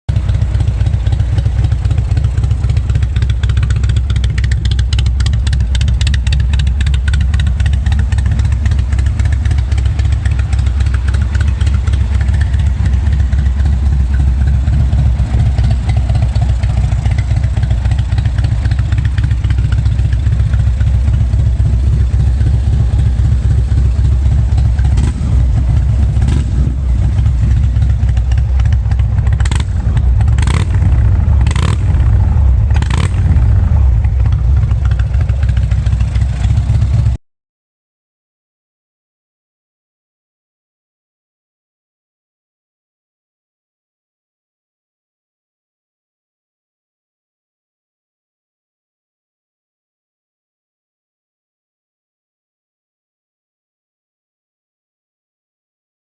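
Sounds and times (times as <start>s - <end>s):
motorcycle engine idling: 0.1s - 37.2s.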